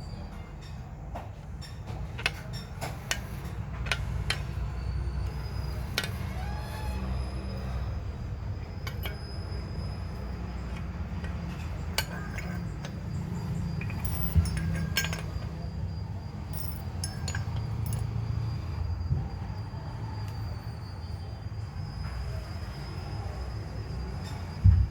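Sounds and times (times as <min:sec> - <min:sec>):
light metallic clinks and taps: 0:08.8 - 0:09.3, 0:10.7 - 0:15.6, 0:16.5 - 0:18.3.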